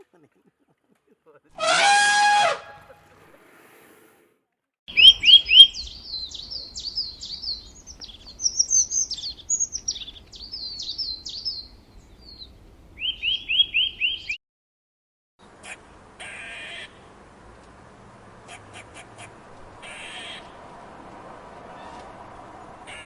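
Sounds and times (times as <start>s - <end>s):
songbird chirping: 4.9s - 14.4s.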